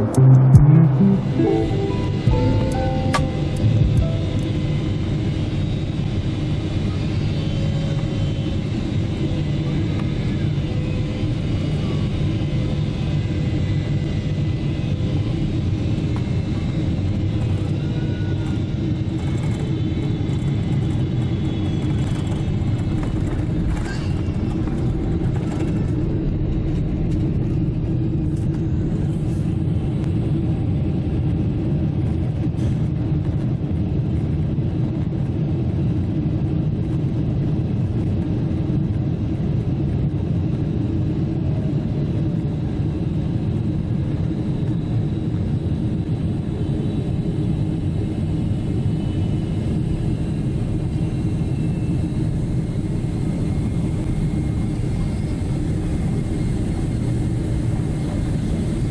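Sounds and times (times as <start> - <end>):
airliner cabin engine rumble: 22.1 - 58.9.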